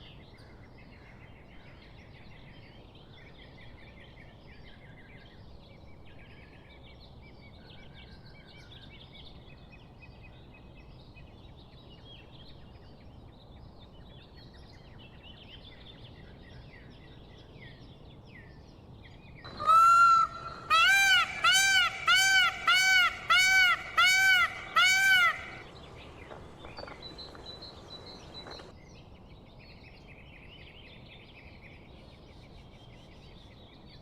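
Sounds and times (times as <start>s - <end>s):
background hiss: 19.5s - 28.7s
loud animal call: 19.5s - 28.7s
songbirds chirping: 19.5s - 29.0s.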